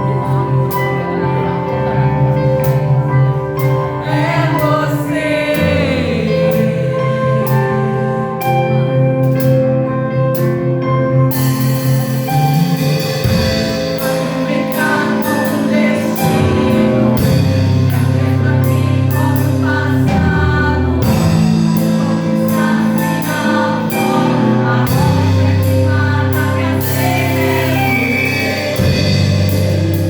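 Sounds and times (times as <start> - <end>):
bass notes: 0.0 - 30.0
praise song sung over band: 4.0 - 8.0, 13.4 - 30.0.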